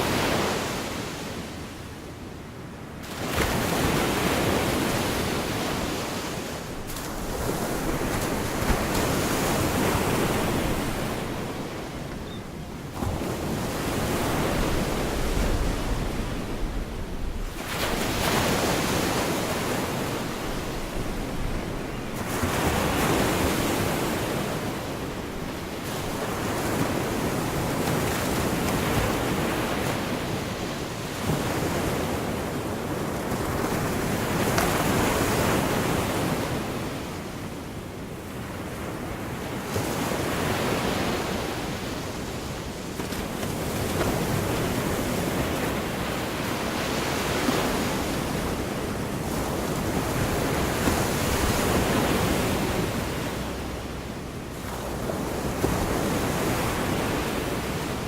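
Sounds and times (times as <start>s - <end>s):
surf breaking on a beach: 3.0s - 12.2s, 38.3s - 58.0s.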